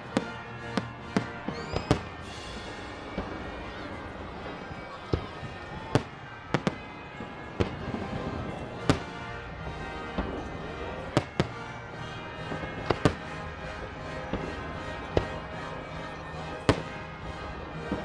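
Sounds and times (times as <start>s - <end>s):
fireworks bangs: 0.0s - 18.0s
music playing: 0.0s - 18.0s.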